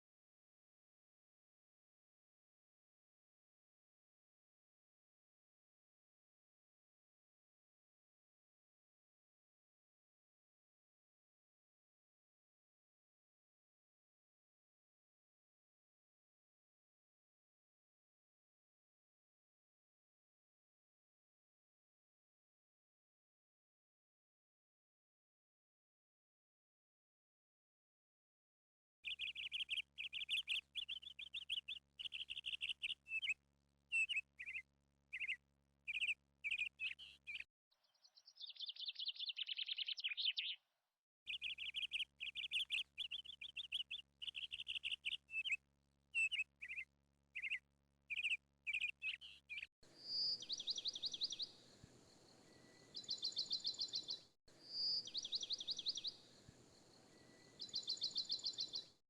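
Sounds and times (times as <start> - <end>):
birds chirping: 29.0 - 40.6, 41.3 - 45.6, 46.2 - 46.8, 47.4 - 58.9
faint outdoor background noise: 41.3 - 59.0.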